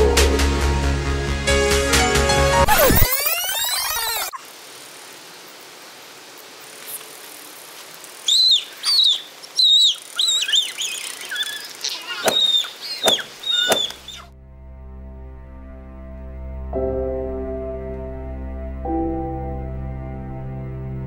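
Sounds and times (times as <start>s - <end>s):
steady outdoor hiss: 4.2s - 14.4s
bird chirping: 8.2s - 14.3s
sharp knocks: 12.2s - 14.0s.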